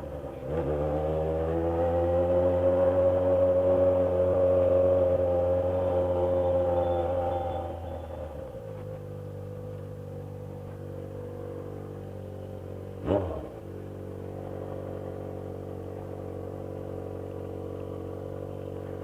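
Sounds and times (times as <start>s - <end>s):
motorcycle engine idling: 4.3s - 19.0s.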